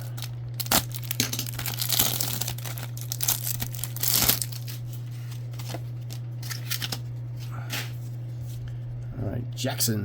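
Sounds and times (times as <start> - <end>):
card pack wrapper crinkling and tearing: 0.0 - 7.0.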